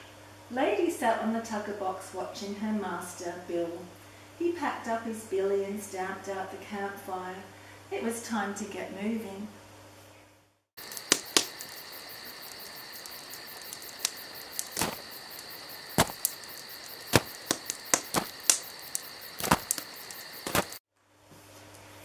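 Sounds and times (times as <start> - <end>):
insects chirring: 10.8 - 20.8
sharp cracks and snaps: 10.8 - 20.8.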